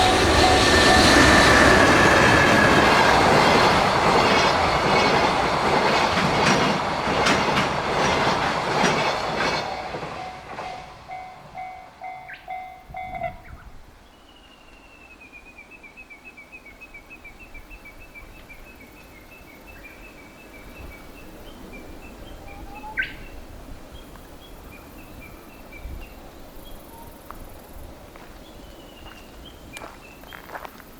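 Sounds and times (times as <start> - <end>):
bird chirping: 9.8 - 23.4.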